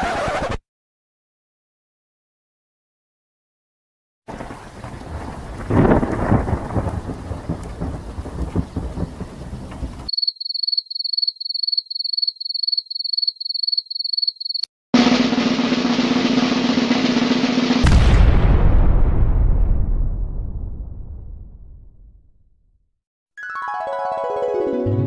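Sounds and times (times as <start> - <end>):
thunder rolling: 4.3 - 10.1, 15.0 - 22.1
cricket chirping: 6.6 - 14.7
drumroll: 15.0 - 18.9.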